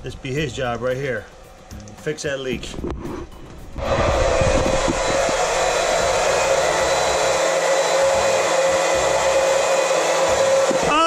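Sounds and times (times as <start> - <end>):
small electric motor whining: 3.8 - 11.0.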